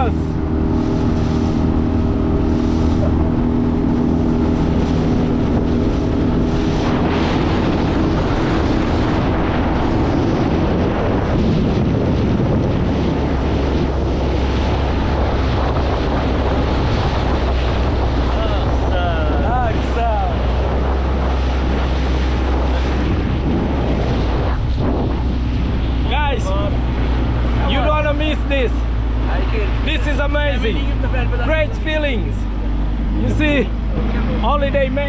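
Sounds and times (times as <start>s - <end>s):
outboard motor droning: 0.0s - 35.0s
water against boat hull: 0.0s - 35.0s
wind on microphone: 0.0s - 35.0s.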